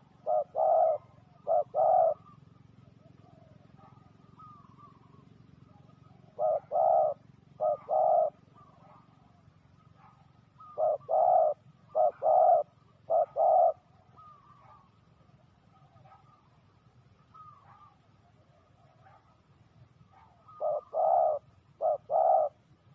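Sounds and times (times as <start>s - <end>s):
faint bird chirps: 0.0s - 22.7s
dove cooing: 0.0s - 22.9s.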